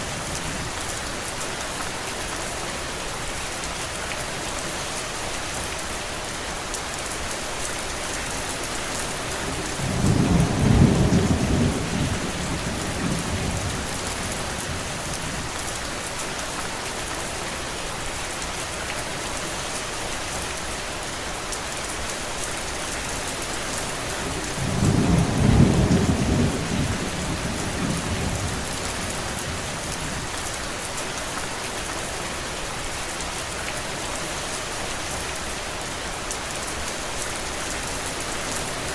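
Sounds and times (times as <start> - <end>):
steady rain: 0.0 - 38.9
distant thunder rolling: 24.4 - 29.6.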